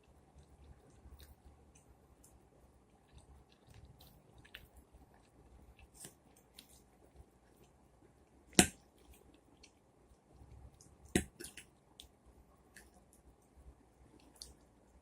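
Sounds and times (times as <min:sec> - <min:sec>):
person chewing food: 0:00.0 - 0:13.4, 0:14.0 - 0:15.0.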